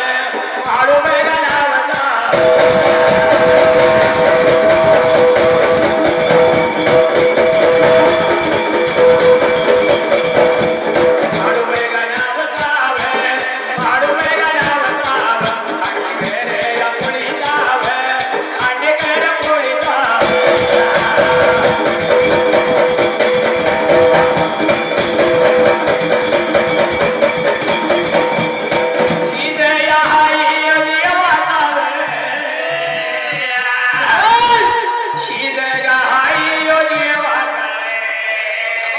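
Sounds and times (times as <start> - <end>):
jingling percussion: 0.0 - 37.3
voices singing: 1.4 - 30.7, 31.6 - 38.9
held instrumental drone note: 2.3 - 11.7, 20.2 - 29.6.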